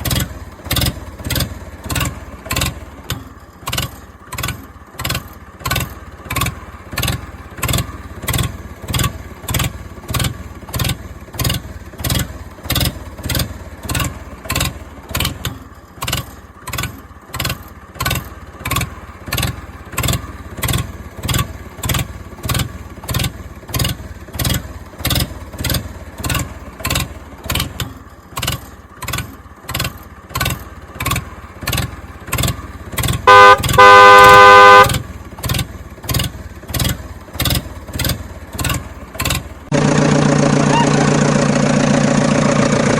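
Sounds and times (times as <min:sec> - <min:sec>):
vehicle engine pulsing: 0:00.0 - 0:42.9
loud horn honk: 0:33.3 - 0:35.0.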